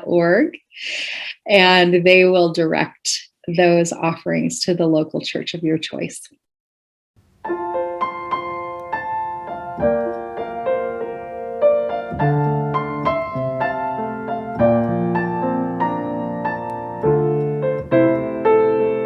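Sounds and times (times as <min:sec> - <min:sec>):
gentle solo piano music: 0:07.4 - 0:19.0.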